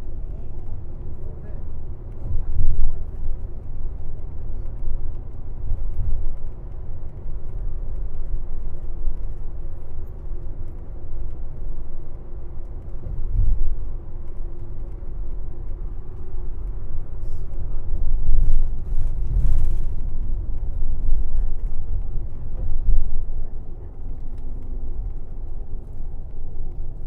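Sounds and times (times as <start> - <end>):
bus engine and road rumble: 0.0 - 27.0.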